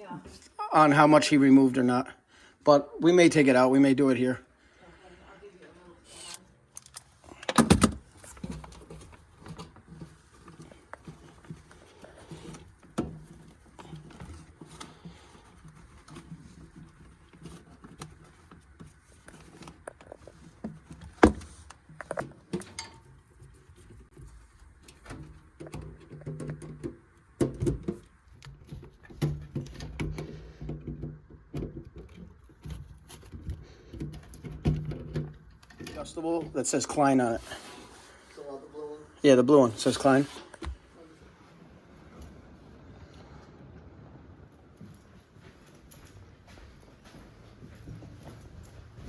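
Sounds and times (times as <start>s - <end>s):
metal parts clicking and knocking: 6.1s - 11.2s.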